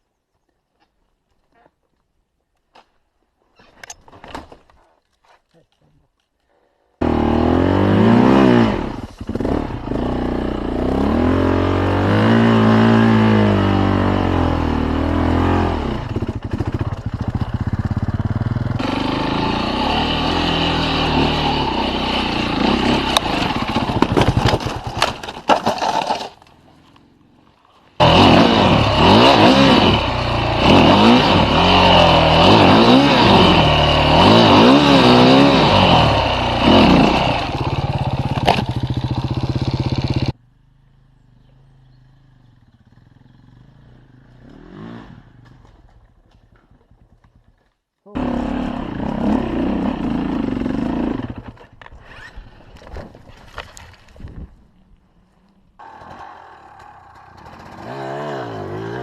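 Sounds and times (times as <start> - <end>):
motorcycle engines revving: 7.0 - 25.0, 28.0 - 46.7, 48.1 - 52.3, 55.8 - 59.0.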